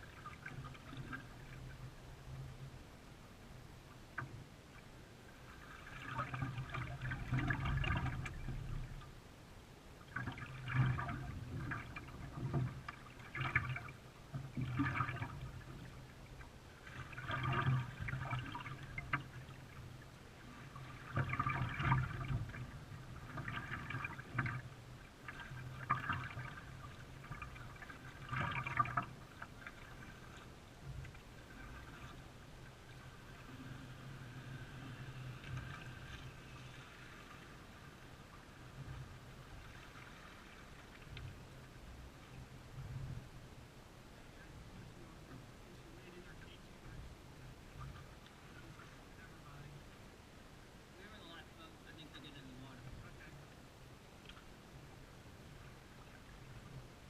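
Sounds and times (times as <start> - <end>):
canoe paddle splashing: 4.8 - 9.2, 10.0 - 42.6.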